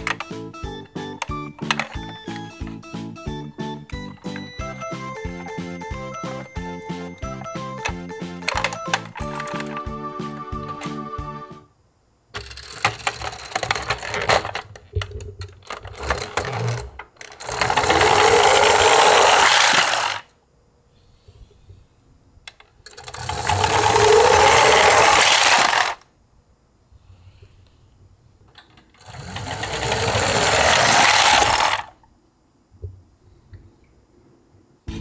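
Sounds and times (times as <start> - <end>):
toy trucks clattering: 0.0 - 2.8, 7.2 - 11.0, 12.4 - 20.3, 22.6 - 26.1, 28.5 - 32.0
small wheels whirring on wood: 15.7 - 20.3, 22.9 - 26.0, 29.0 - 31.9.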